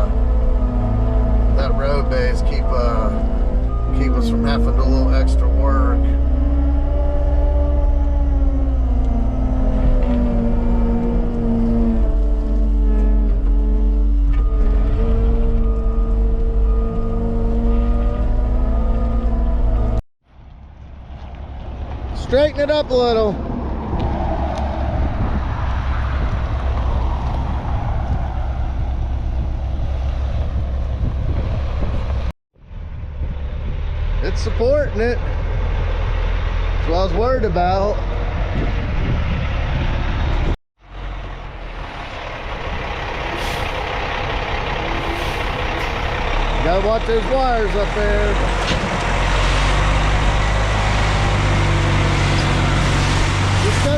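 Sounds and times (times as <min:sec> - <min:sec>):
diesel loader engine running: 0:00.0 - 0:53.9
wind on microphone: 0:23.4 - 0:33.9, 0:37.7 - 0:40.6.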